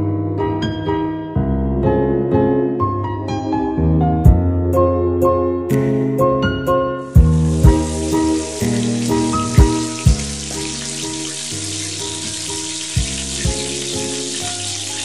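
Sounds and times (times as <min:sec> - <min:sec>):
background music with steady beat: 0:07.1 - 0:11.9
batter sizzling in hot oil: 0:07.1 - 0:15.0.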